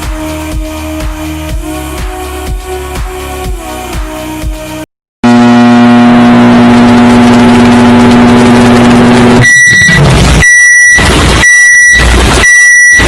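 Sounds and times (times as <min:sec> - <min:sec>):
microwave oven humming: 0:05.3 - 0:09.4
long high beeps: 0:05.3 - 0:13.0.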